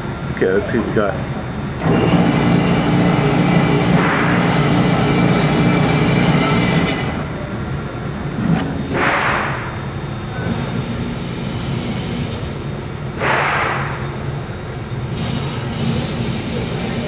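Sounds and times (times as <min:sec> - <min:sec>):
target carrier motor running: 0:00.0 - 0:17.0.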